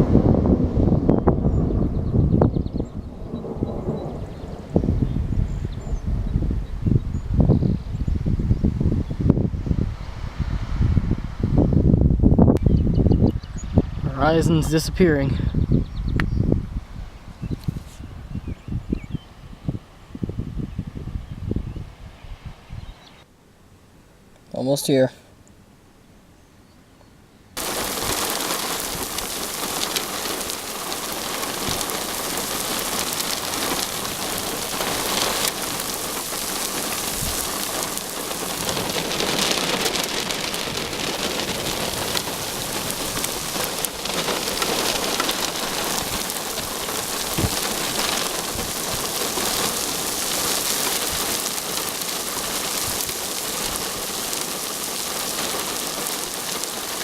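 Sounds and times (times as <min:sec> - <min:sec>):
heavy rain pouring: 0:00.0 - 0:08.9, 0:27.6 - 0:57.0
raindrop impacts: 0:27.6 - 0:57.0.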